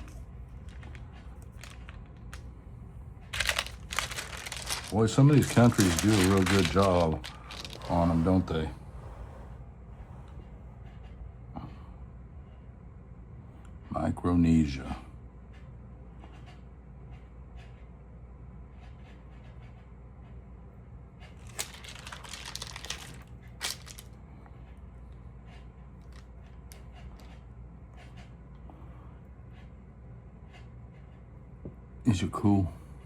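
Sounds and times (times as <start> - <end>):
pages rustling: 0.0 - 2.5, 3.3 - 8.6, 21.4 - 24.1
low room hum: 0.0 - 33.0.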